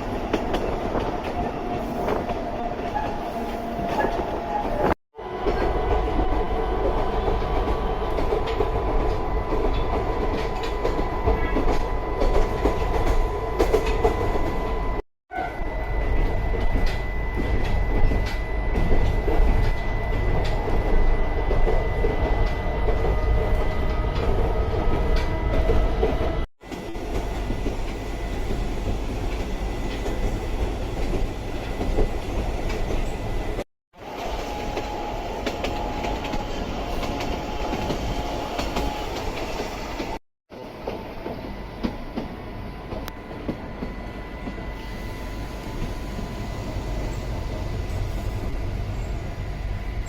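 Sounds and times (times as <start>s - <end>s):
train wheels rolling: 16.0s - 40.2s.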